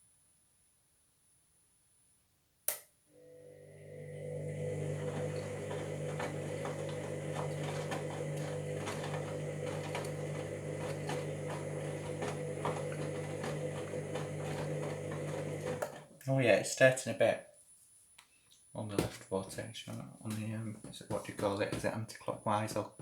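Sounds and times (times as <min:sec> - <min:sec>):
washing machine motor hum: 0:03.2 - 0:16.1.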